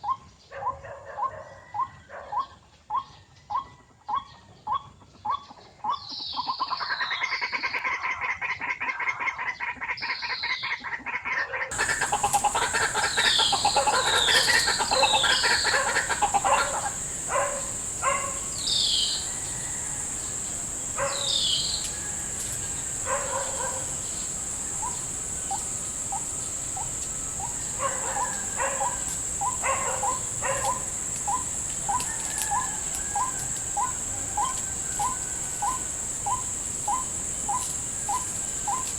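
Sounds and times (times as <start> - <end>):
steady high-pitched whine: 11.7 - 38.9
waterhens calling harshly: 11.7 - 38.9.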